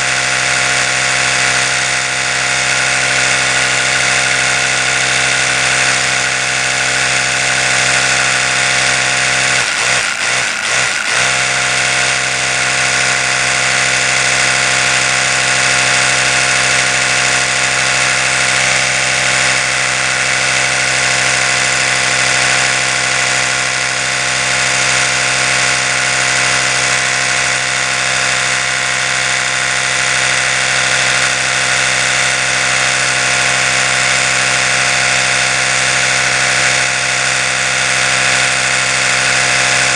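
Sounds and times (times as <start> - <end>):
electric toothbrush buzzing: 0.0 - 39.9.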